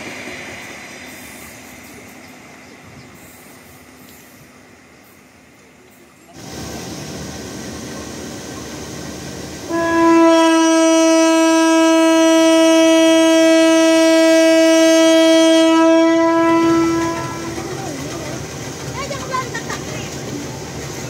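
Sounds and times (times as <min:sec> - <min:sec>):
train rumble: 0:00.0 - 0:21.0
locomotive horn: 0:09.7 - 0:17.8.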